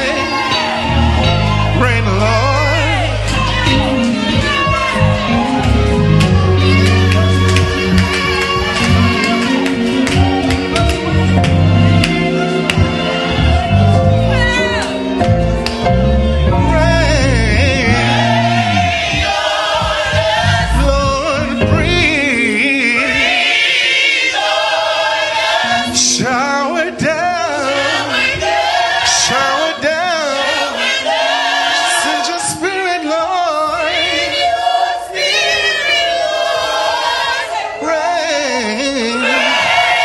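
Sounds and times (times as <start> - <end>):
low bass accompaniment: 0.0 - 23.2
gospel choir singing: 0.0 - 40.0.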